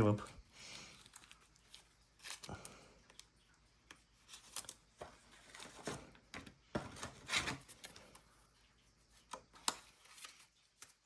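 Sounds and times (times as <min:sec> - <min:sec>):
paper cards rustling and clicking: 0:00.0 - 0:08.3, 0:09.1 - 0:11.0.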